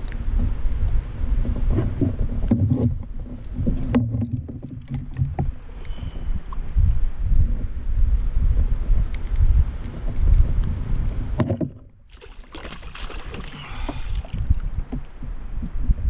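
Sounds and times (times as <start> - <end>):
knocks and clicks against hull: 1.4 - 5.6, 7.6 - 12.0, 12.6 - 16.0.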